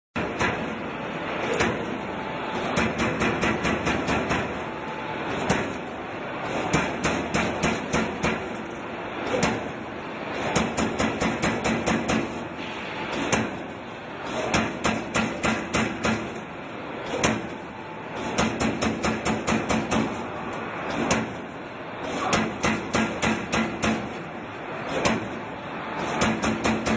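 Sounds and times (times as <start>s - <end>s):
punch press hitting sheet metal: 0.2s - 0.8s, 2.6s - 4.6s, 5.3s - 8.7s, 9.3s - 9.8s, 10.4s - 12.4s, 13.1s - 13.7s, 14.3s - 16.4s, 17.0s - 17.6s, 18.2s - 20.2s, 20.9s - 21.4s, 22.1s - 24.3s, 24.9s - 25.4s, 26.0s - 26.9s
low machine hum: 0.2s - 26.9s.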